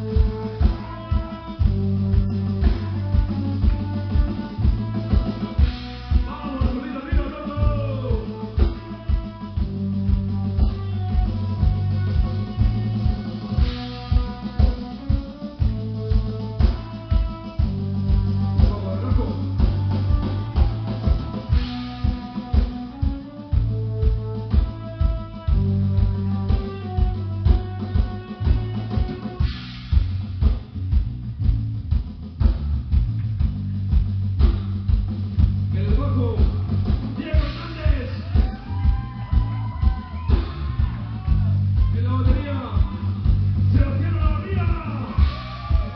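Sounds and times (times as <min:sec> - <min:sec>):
bass drum hits: 0:00.0 - 0:45.9
rock band playing: 0:00.0 - 0:45.9.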